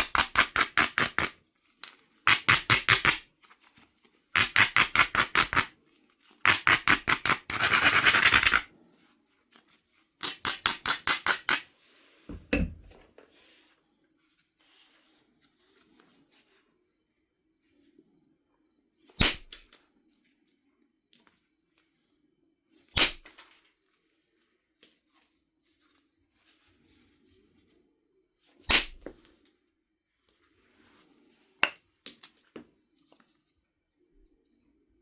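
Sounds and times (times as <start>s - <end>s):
stone scraping flint: 0.0s - 8.8s.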